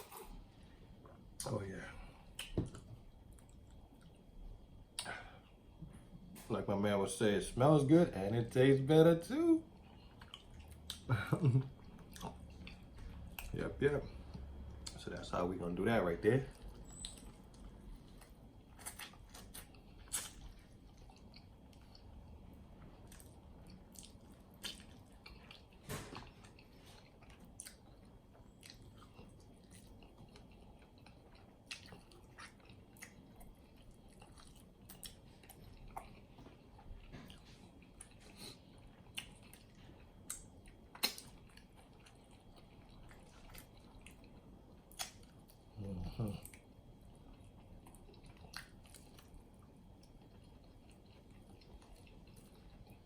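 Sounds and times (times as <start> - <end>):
chewing and biting: 16.5 - 53.0
wet mouth clicks and smacks: 40.3 - 41.4.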